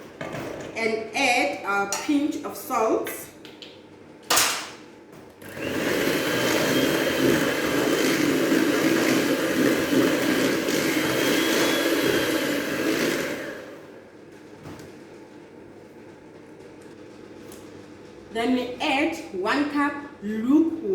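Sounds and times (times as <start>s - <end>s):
electric mixer running: 5.4s - 14.1s.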